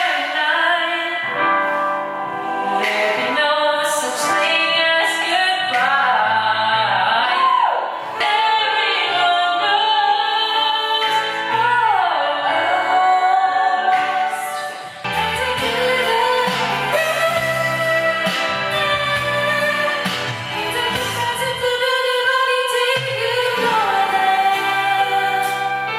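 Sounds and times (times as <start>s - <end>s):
woman singing: 0.0s - 25.9s
bass line: 15.0s - 25.9s.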